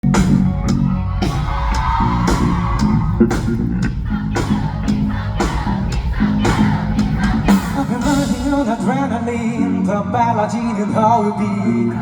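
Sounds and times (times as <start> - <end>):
drum beat: 0.0 - 9.0
bass line: 0.0 - 12.0
guitar: 0.0 - 12.0.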